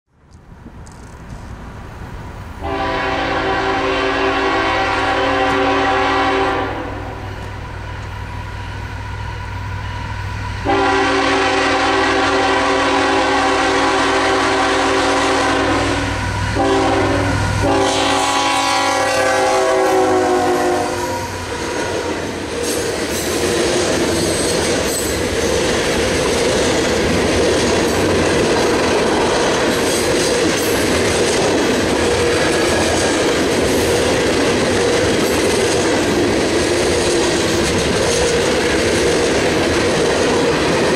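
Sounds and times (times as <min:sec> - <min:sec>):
grade crossing signal: 0:00.2 - 0:40.9
train wheels clickety-clack: 0:00.3 - 0:01.6, 0:21.3 - 0:40.9
train horn blasts: 0:02.6 - 0:08.8, 0:09.8 - 0:22.4.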